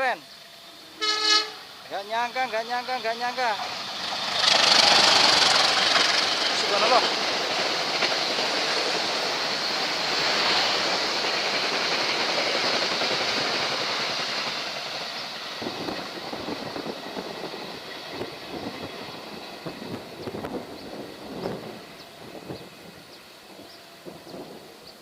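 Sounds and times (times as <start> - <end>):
passenger trains passing: 0.0 - 25.0
wind gusts on microphone: 15.6 - 25.0.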